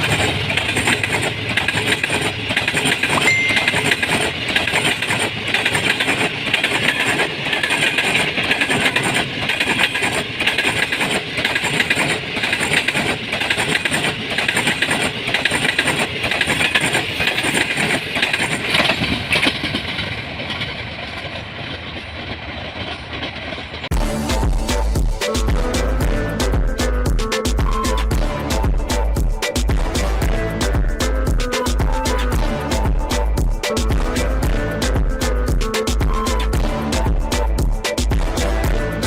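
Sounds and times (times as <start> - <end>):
wheels clattering over rail joints: 0.0 - 23.9
train passing with rushing rumble: 0.0 - 39.0
music: 3.2 - 4.4, 23.9 - 39.0.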